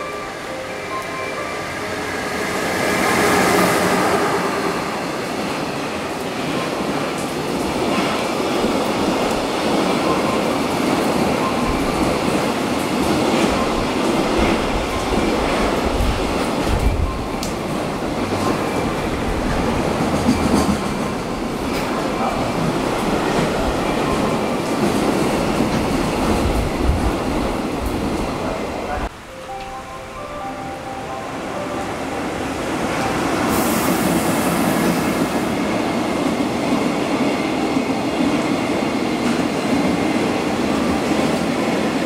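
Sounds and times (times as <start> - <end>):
electric locomotive passing: 0.0 - 42.0
train wheels rushing rumble: 0.3 - 29.1.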